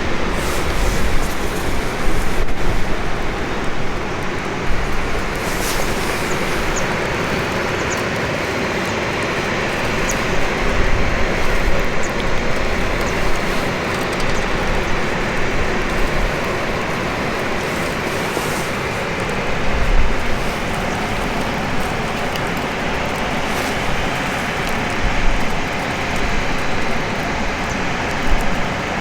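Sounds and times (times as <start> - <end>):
campfire burning: 0.0 - 29.0
fire crackles and pops: 0.0 - 29.0.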